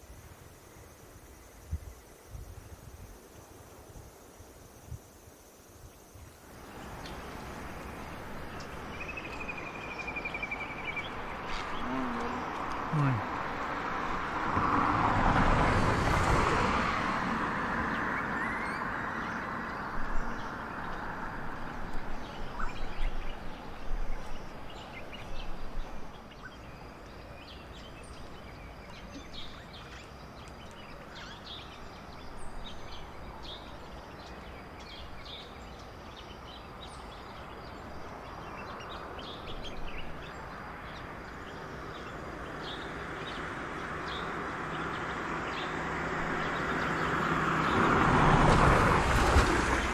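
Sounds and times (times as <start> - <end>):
outdoor background noise: 0.0 - 49.9
birds calling: 6.6 - 14.8.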